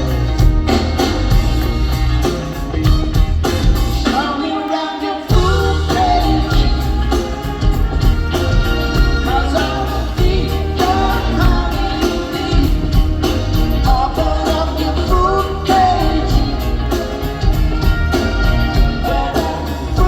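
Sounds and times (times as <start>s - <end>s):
steady drum beat: 0.0s - 4.4s, 5.3s - 20.0s
live rock band playing: 0.0s - 20.0s
lead vocal singing: 4.0s - 20.0s.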